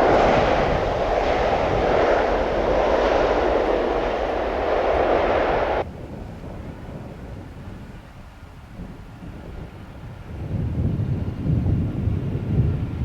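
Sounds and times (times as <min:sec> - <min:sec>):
jet engines rushing: 0:00.0 - 0:05.9
faint wind: 0:00.0 - 0:13.0.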